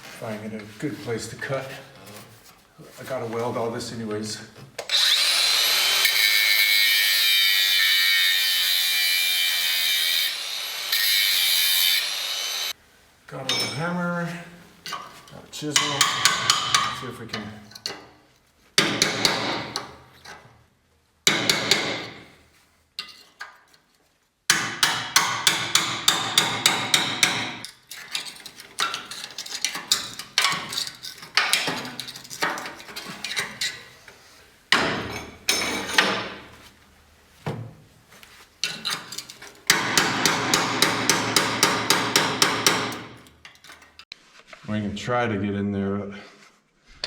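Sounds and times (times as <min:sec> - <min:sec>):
hammer striking a chisel on metal: 0:15.8 - 0:17.0, 0:18.8 - 0:19.9, 0:21.3 - 0:22.2, 0:24.5 - 0:27.6, 0:39.7 - 0:43.2.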